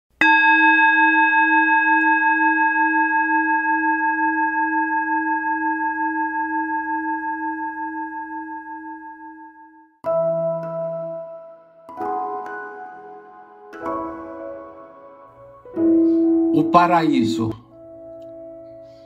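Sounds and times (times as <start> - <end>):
singing bowl ringing: 0.2 - 10.0.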